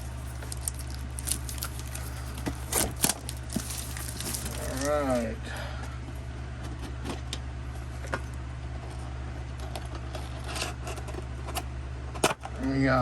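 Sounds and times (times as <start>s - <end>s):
packaging clicks and rubbing: 0.0s - 4.9s
steady low hum: 0.0s - 13.0s.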